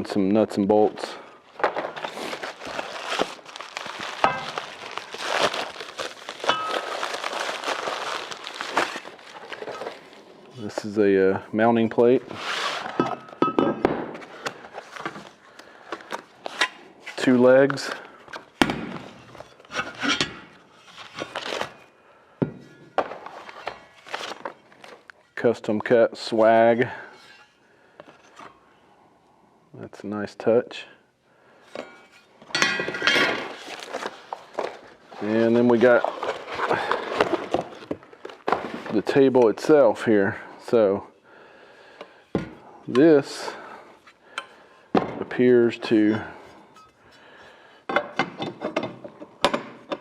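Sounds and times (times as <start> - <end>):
packaging rustling and crinkling: 1.5 - 10.8, 20.8 - 21.9, 23.0 - 25.2, 32.9 - 39.3
metal parts knocking and clunking: 31.7 - 33.5, 47.9 - 50.0.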